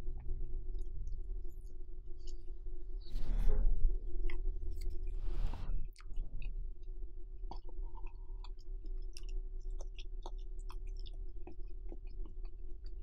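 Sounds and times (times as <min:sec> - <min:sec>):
low hum: 0:00.0 - 0:13.0
chewing with mouth clicks: 0:05.9 - 0:13.0.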